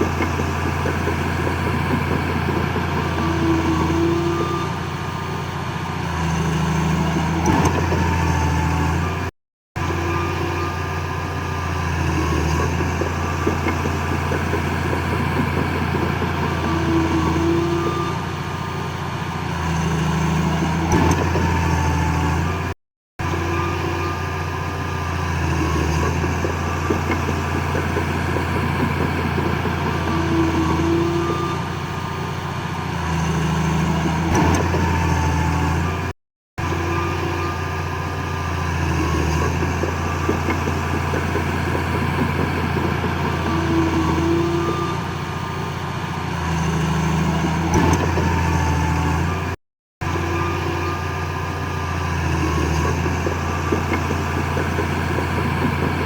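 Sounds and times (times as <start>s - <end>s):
heavy diesel machinery running: 0.0s - 56.0s.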